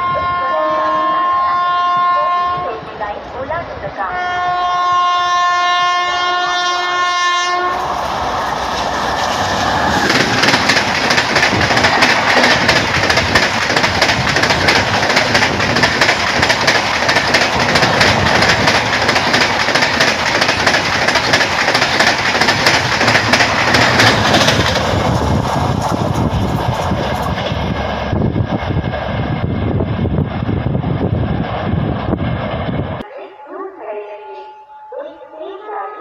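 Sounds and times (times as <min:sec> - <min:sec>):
train horn blast: 0:00.0 - 0:02.8, 0:04.0 - 0:07.9
train wheels clattering over rails: 0:08.0 - 0:30.2.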